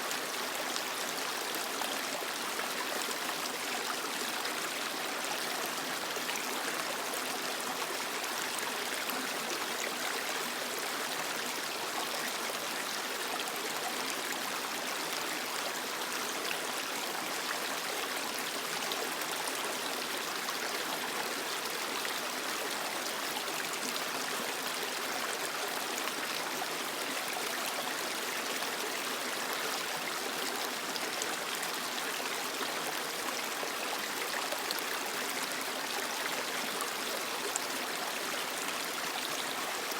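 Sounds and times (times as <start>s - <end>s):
creek flowing over rocks: 0.0s - 39.9s.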